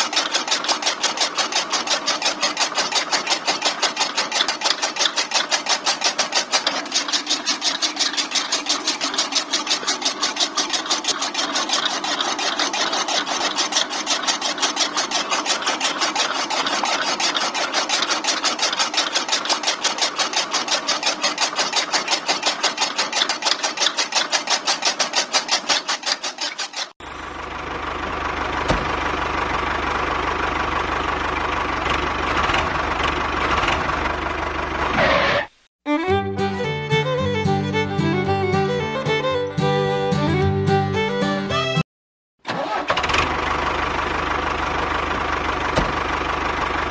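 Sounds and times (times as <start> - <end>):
small motor rhythmic clatter: 0.0 - 27.0.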